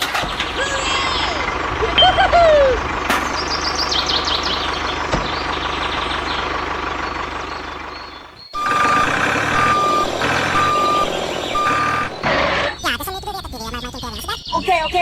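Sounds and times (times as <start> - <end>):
reversing alarm beeping: 1.5 - 3.7, 7.0 - 12.8.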